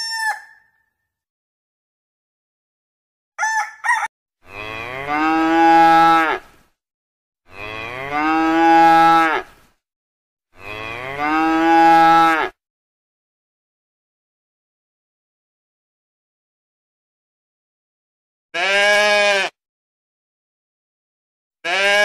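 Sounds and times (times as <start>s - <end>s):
chicken calls: 0.0s - 0.8s, 3.4s - 4.1s
cow mooing: 4.4s - 6.5s, 7.5s - 9.5s, 10.6s - 12.6s, 18.6s - 19.5s, 21.6s - 22.0s.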